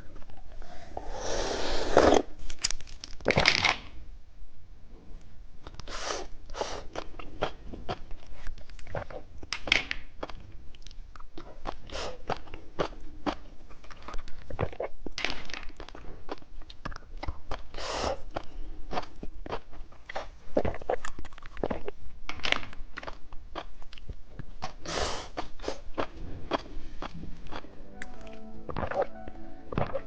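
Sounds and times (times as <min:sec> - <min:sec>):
chewing crunchy candy: 0:05.6 - 0:27.8, 0:28.7 - 0:29.1.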